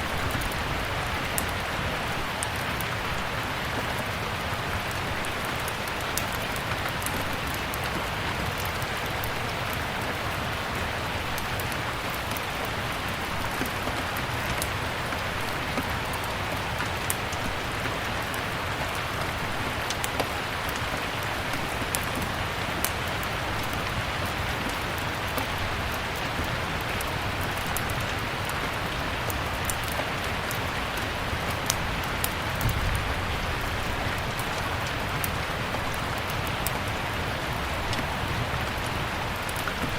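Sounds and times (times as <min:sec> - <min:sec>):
steady rain: 0:00.0 - 0:39.9
wood fire crackling and popping: 0:24.6 - 0:37.0.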